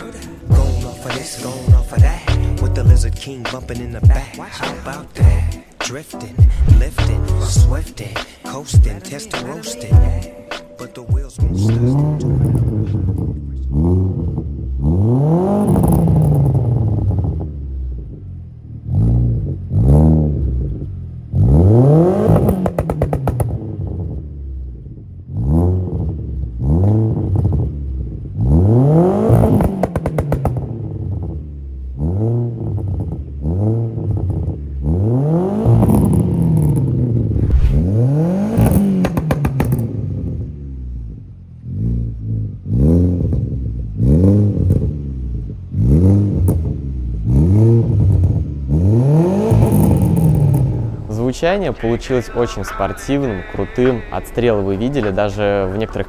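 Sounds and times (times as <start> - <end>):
car engine revving: 0.0 - 8.3, 11.4 - 53.2
exhaust crackling pops: 22.3 - 24.0, 29.3 - 30.9, 35.8 - 40.4.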